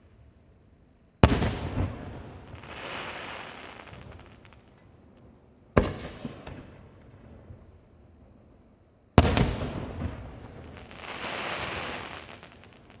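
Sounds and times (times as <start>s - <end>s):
firework hiss and crackles: 1.3s - 4.8s, 9.2s - 13.0s.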